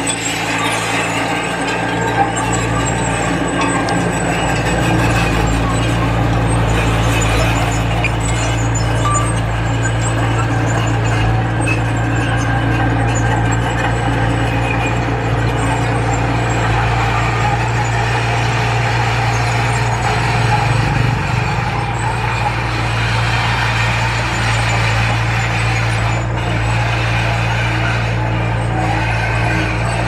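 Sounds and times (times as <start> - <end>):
heavy diesel engine droning: 0.0 - 30.0.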